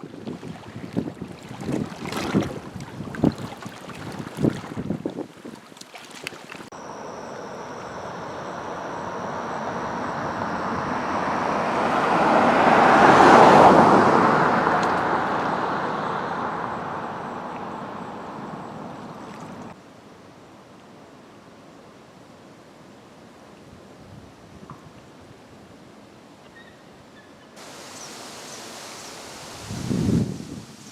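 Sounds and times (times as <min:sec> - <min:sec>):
car passing by: 0:06.8 - 0:19.8.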